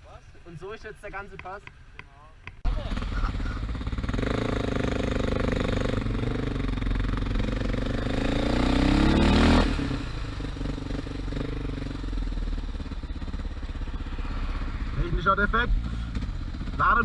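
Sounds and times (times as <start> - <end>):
motorcycle engine accelerating: 2.6 - 17.0.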